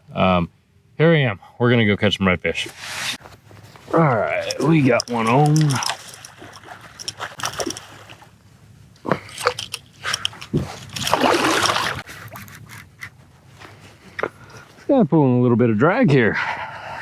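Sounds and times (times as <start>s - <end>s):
water splashing and sloshing: 3.1s - 8.4s, 9.1s - 13.0s.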